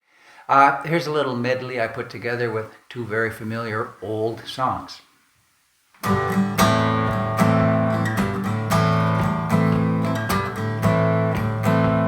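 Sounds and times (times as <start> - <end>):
acoustic guitar strumming: 6.0 - 12.0.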